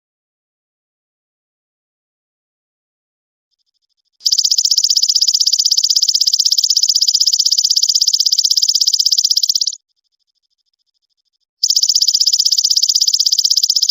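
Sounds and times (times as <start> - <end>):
songbird high-pitched trill: 4.2 - 9.8, 11.6 - 13.9.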